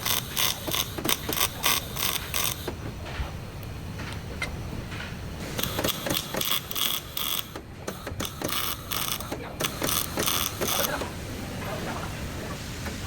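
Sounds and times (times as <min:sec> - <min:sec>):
workshop tool mechanical bursts: 0:00.0 - 0:02.8, 0:05.4 - 0:11.2.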